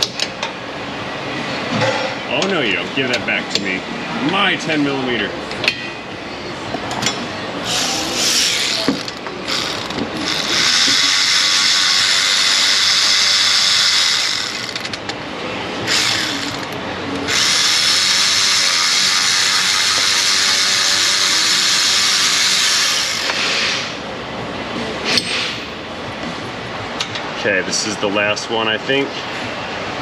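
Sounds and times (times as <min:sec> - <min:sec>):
cordless power tool running: 0:07.7 - 0:15.0, 0:15.9 - 0:23.4.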